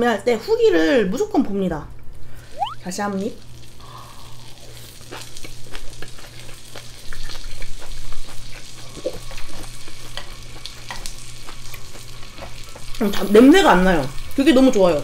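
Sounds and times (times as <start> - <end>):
close chewing with wet mouth sounds: 4.0 - 13.1.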